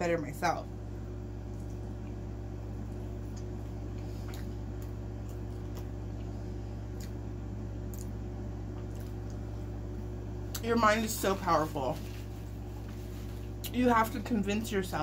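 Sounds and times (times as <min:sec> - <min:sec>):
steady low hum: 0:00.0 - 0:15.0
chewing with wet mouth clicks: 0:01.4 - 0:06.3, 0:06.9 - 0:07.2, 0:07.8 - 0:09.5.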